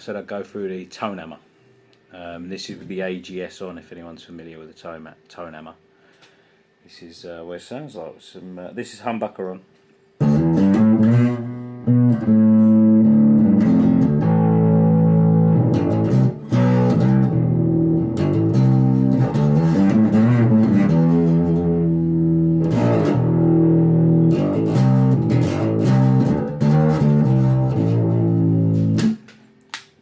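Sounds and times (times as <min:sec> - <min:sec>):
electric bass plucked notes: 0:10.2 - 0:29.3.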